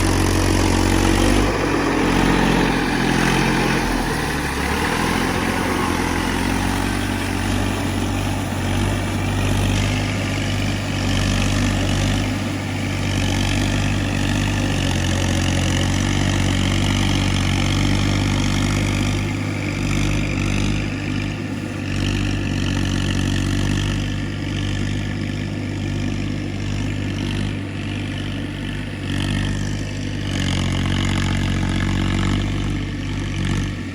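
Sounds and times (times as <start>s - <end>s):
tractor diesel engine under load: 0.0s - 33.9s.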